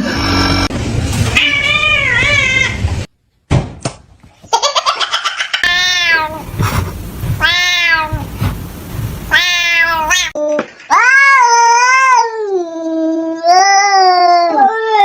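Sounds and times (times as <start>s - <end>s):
cat meowing: 1.3s - 2.9s, 5.6s - 6.4s, 9.3s - 12.3s.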